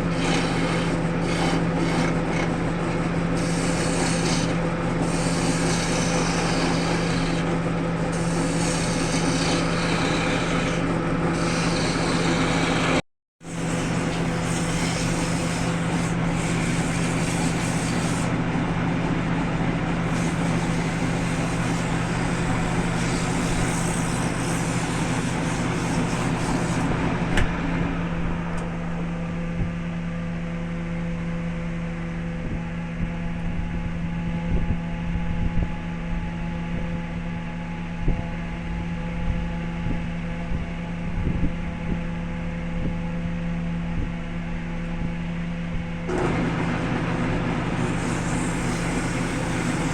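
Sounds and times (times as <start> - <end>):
wood lathe motor hum: 0.0 - 18.6, 19.6 - 27.5, 46.1 - 49.9
rough hissing cutting noise: 11.4 - 18.3, 20.1 - 26.9, 47.7 - 49.9.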